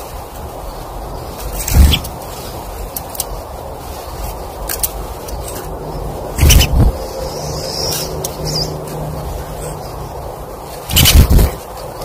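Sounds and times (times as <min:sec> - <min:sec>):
low rushing background: 0:00.0 - 0:12.0
faint high bird chirps: 0:06.4 - 0:08.9.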